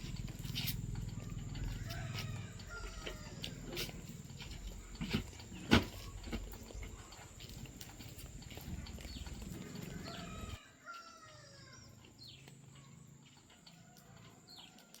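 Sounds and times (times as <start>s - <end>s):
rooster crowing: 1.2s - 4.2s, 9.5s - 11.9s.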